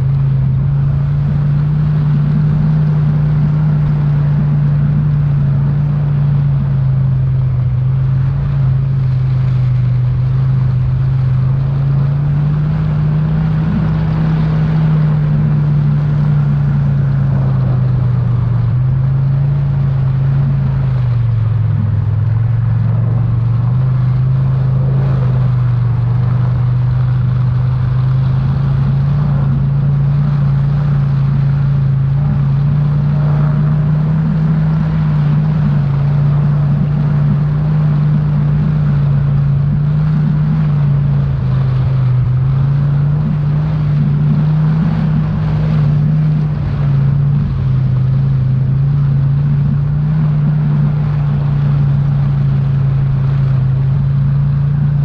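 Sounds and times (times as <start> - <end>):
engine droning steadily: 0.0 - 55.0.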